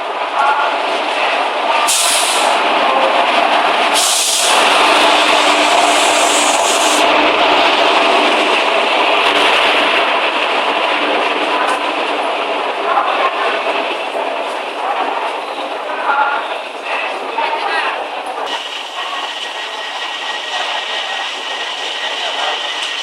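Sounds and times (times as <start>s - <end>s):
passenger train rumbling and rattling: 0.0s - 23.0s
high hissing: 3.9s - 7.1s.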